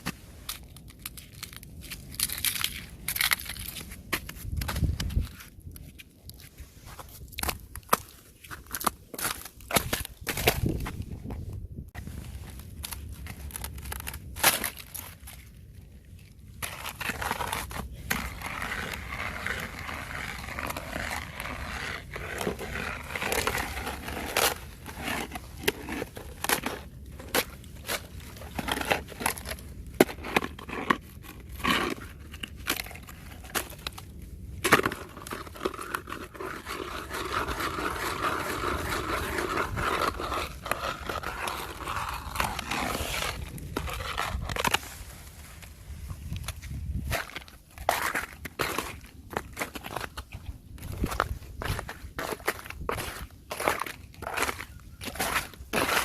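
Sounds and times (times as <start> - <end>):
thin ice crunching and cracking: 0.0 - 56.0.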